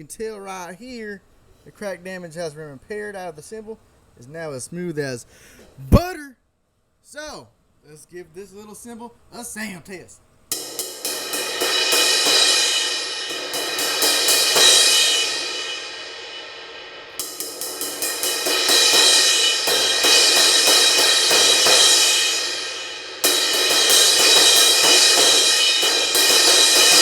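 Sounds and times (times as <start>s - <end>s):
crash cymbal struck rapidly: 10.5s - 27.0s.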